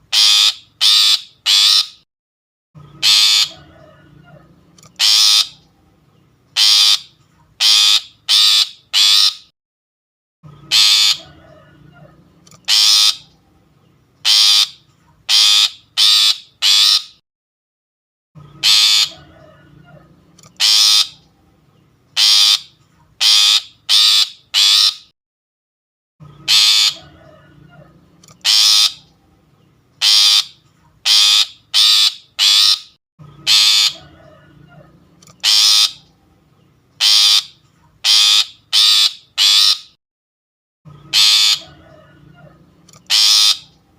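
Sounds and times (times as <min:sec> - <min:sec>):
shrike harsh rasping calls: 0:00.1 - 0:02.0, 0:02.9 - 0:05.7, 0:06.6 - 0:09.5, 0:10.5 - 0:13.4, 0:14.2 - 0:17.2, 0:18.4 - 0:21.4, 0:22.2 - 0:25.1, 0:26.3 - 0:29.2, 0:30.0 - 0:36.2, 0:37.0 - 0:40.0, 0:40.9 - 0:43.9.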